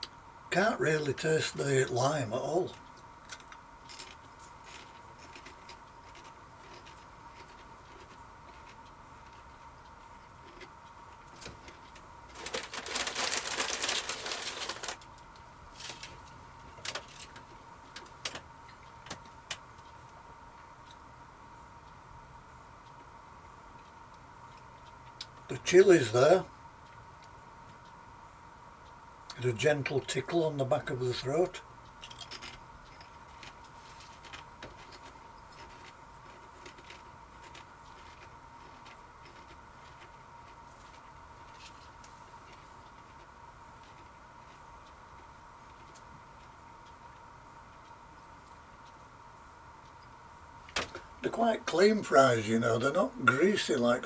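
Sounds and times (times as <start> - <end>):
faint steady hum: 0.0 - 54.0
potato crisps being chewed: 3.3 - 17.5, 32.0 - 44.7
crisp bag crackling: 12.3 - 15.0.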